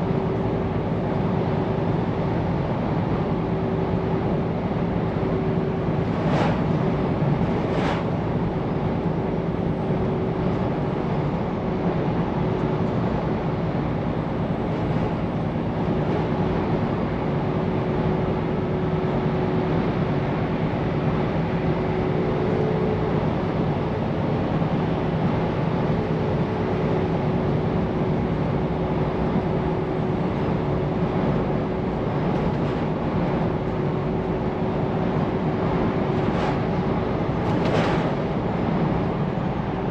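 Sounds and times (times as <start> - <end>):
tyre and road noise: 4.3 - 10.8, 28.0 - 39.9.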